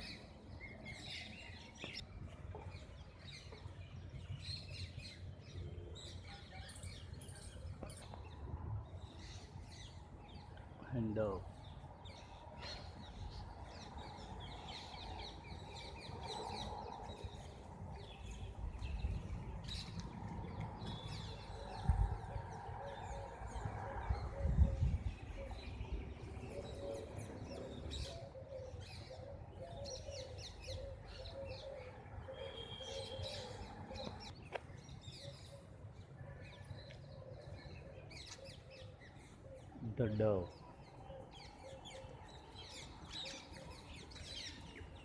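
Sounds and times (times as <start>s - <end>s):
birds chirping: 0.0s - 45.0s
low repeating bird call: 22.9s - 34.3s.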